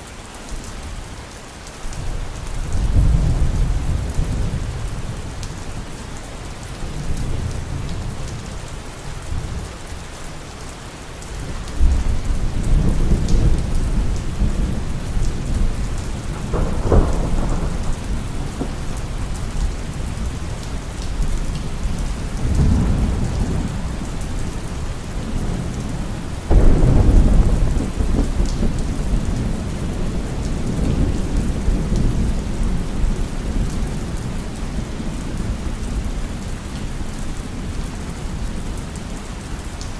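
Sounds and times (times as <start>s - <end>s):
heavy rain: 0.0s - 39.9s
rolling thunder: 2.6s - 6.0s, 11.8s - 36.9s.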